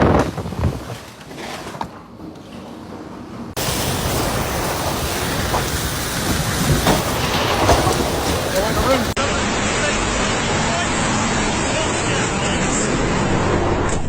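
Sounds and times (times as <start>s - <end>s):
storm wind rushing: 3.5s - 11.7s.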